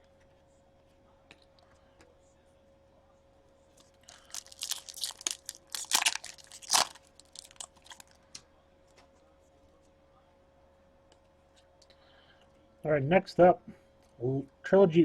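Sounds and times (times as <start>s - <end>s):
plastic packaging crinkling and tearing: 3.8s - 8.3s.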